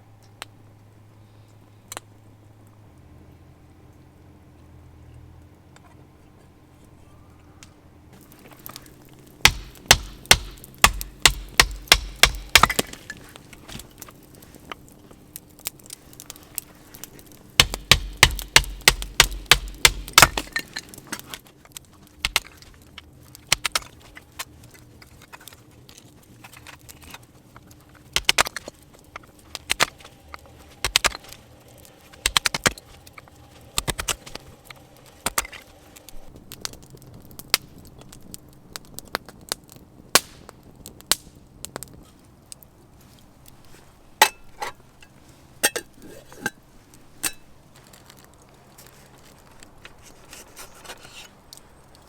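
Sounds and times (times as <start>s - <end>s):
sharp cracks of wood: 8.2s - 43.7s.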